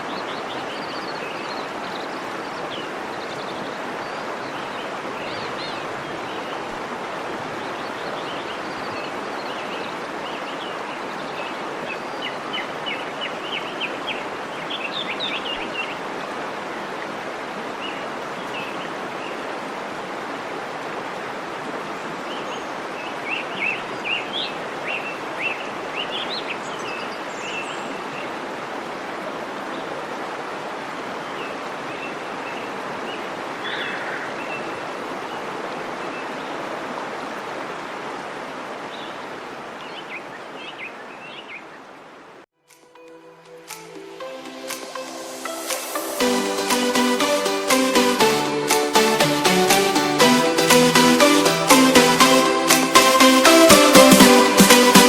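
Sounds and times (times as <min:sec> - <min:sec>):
waterfall rushing: 0:00.0 - 0:39.7, 0:43.5 - 0:55.0.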